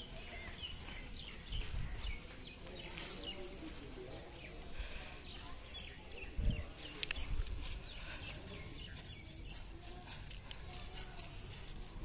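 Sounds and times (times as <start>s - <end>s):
birds chirping: 0.0s - 12.0s
wind rumble on microphone: 6.2s - 7.7s.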